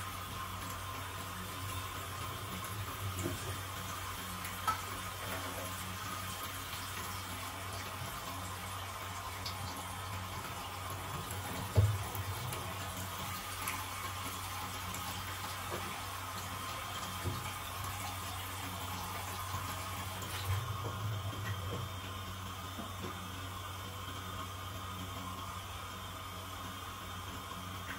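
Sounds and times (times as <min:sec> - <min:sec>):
water running from a tap: 0:00.0 - 0:27.9.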